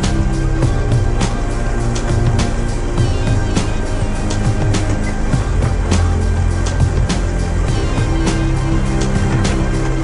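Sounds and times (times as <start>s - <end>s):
background music with low notes: 0.0s - 10.0s.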